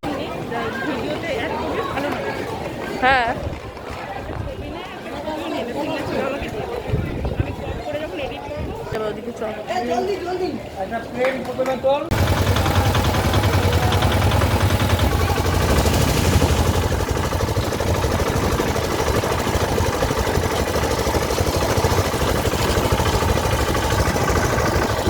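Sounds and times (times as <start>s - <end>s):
vehicle engine rumbling: 12.1s - 25.0s.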